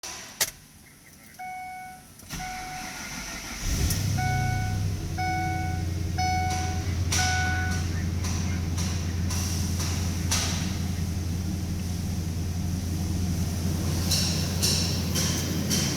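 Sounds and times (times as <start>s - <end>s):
dashboard warning chime beeping: 1.4s - 3.0s, 4.0s - 8.0s
truck engine starting and idling: 1.4s - 15.9s.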